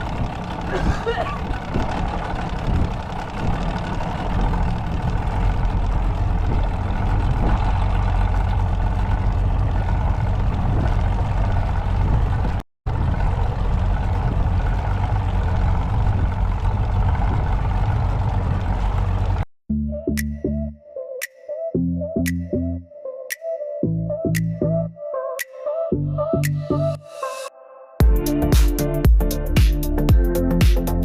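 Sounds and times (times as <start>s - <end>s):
rushing wind: 0.0s - 19.4s
motorboat engine running: 0.0s - 19.5s, 28.0s - 31.0s.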